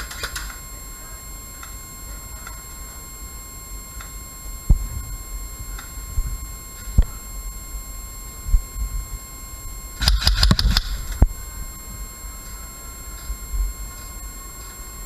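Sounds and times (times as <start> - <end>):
high electronic whine: 0.0 - 15.0
airsoft gun shots: 10.0 - 11.2.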